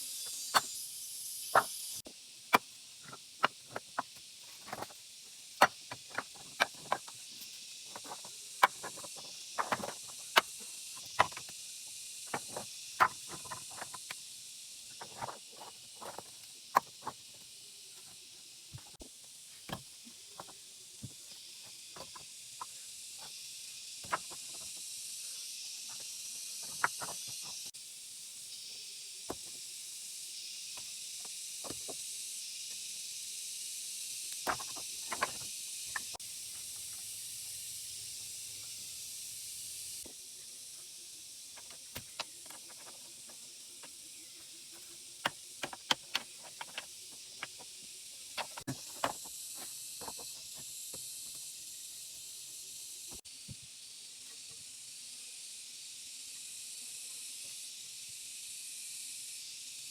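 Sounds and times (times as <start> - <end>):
high-pitched hiss: 0.0 - 59.9
sharp clicks and knocks: 45.2 - 47.7.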